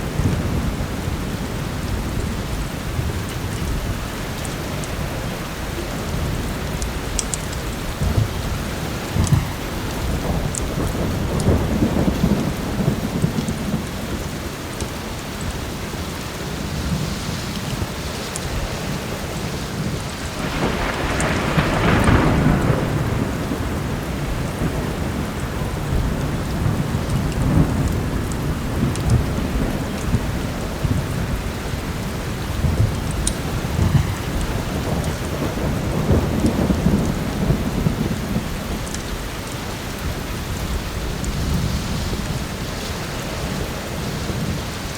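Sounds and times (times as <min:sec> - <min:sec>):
heavy rain: 0:00.0 - 0:44.9
rolling thunder: 0:00.0 - 0:44.9.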